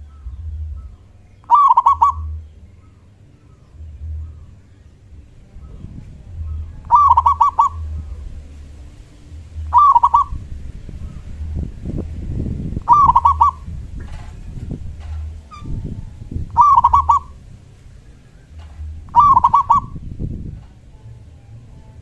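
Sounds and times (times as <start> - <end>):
low rumble: 0.0 - 22.0
dove cooing: 1.4 - 2.4, 6.5 - 8.3, 9.5 - 10.5, 12.8 - 14.4, 16.5 - 17.5, 18.5 - 20.1.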